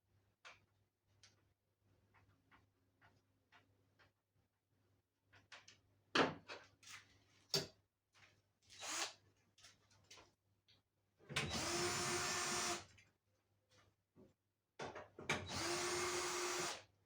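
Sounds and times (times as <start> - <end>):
electric drill-driver running: 8.8 - 9.1, 11.5 - 12.8, 15.5 - 16.8.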